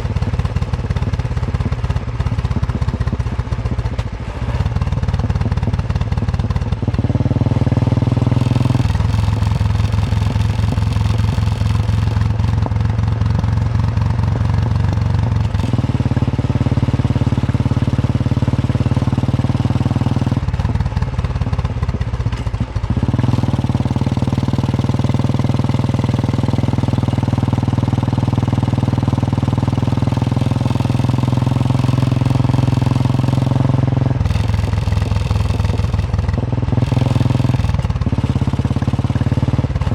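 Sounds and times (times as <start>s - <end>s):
motorcycle engine thumping: 0.0s - 17.9s, 18.9s - 27.0s, 27.6s - 39.9s.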